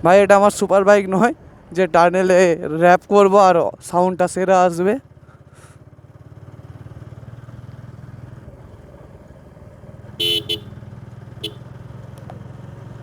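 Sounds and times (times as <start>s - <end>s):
motorcycle engine running: 5.0s - 13.0s
short horn beeps: 10.2s - 10.8s, 11.4s - 11.6s.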